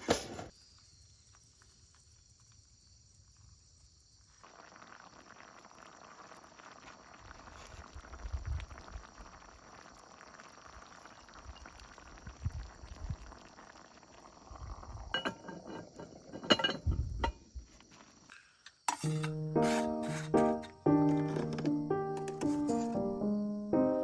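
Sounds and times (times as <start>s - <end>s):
insects chirring: 0.5s - 24.0s
cookware clinking and knocking: 15.2s - 17.4s, 18.9s - 23.0s.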